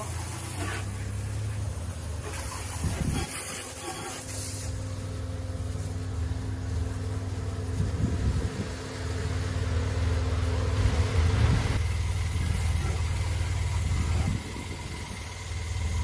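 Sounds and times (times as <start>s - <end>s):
hiss: 0.0s - 9.1s
diesel tractor engine idling: 0.0s - 16.0s.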